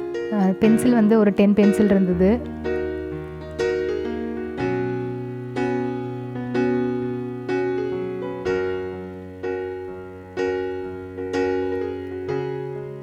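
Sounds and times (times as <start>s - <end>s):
piano chords ringing out: 0.0s - 13.0s.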